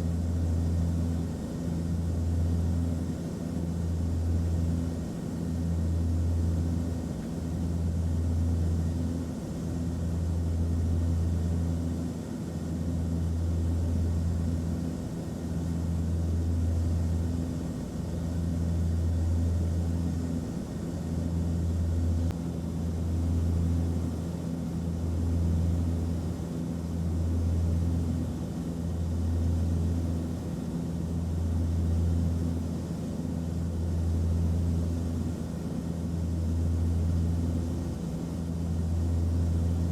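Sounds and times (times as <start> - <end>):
airplane cabin drone: 0.0 - 39.9.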